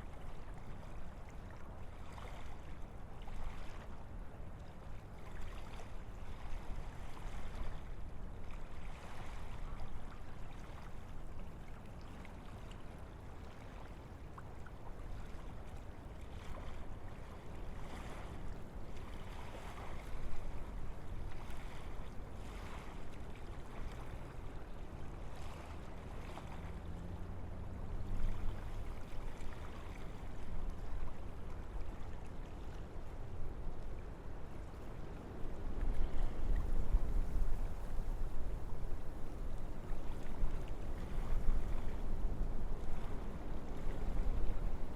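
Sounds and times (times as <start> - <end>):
wind through trees: 13.3 - 44.9.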